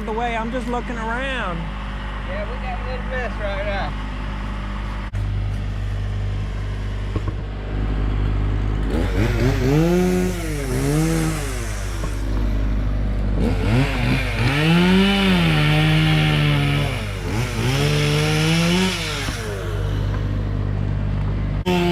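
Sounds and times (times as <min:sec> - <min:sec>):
low engine hum: 0:00.0 - 0:21.9
chainsaw revving: 0:06.0 - 0:20.8, 0:21.6 - 0:21.9.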